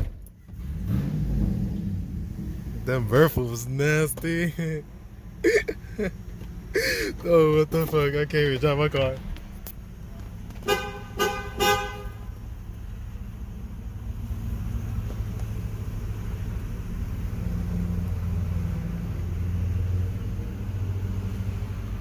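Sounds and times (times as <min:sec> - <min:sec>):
loud vee eight exhaust rumble: 0:00.1 - 0:22.0
car horn toot: 0:10.6 - 0:12.4.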